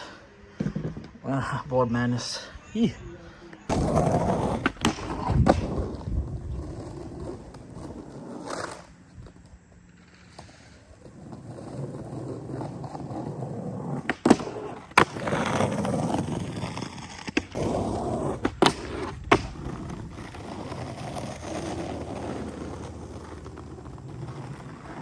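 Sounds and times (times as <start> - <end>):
skateboard clacking on ground: 3.7 - 25.0
skateboard rolling: 3.7 - 25.0.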